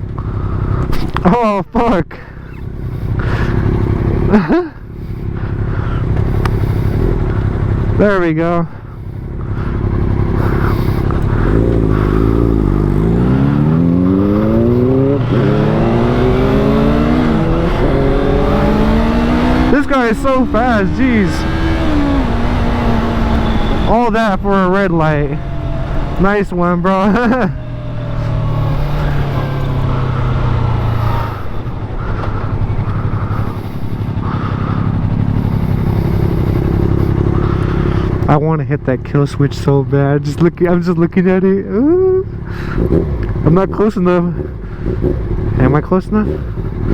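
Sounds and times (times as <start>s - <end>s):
motorcycle engine accelerating: 0.0s - 46.9s
wind rushing: 11.4s - 36.8s.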